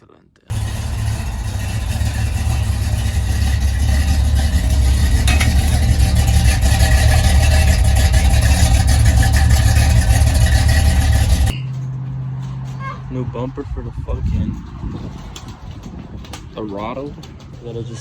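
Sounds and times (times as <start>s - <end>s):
vehicle engine running: 0.5s - 12.8s.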